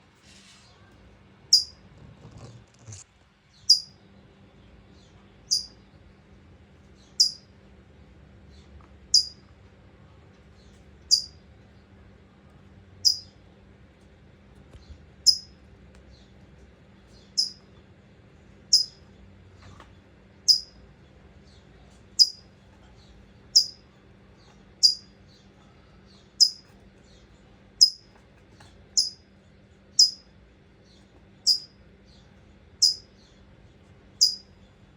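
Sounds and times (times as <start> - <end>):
bird chip call: 5.5 - 5.7, 18.7 - 19.0, 23.6 - 23.8, 24.8 - 25.0, 34.2 - 34.4.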